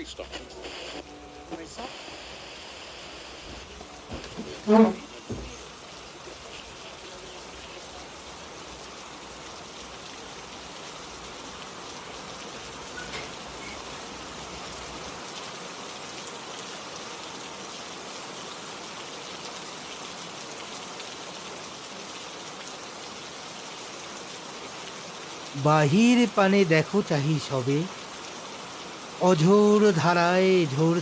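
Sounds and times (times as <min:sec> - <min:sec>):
rain falling: 0:00.0 - 0:31.0.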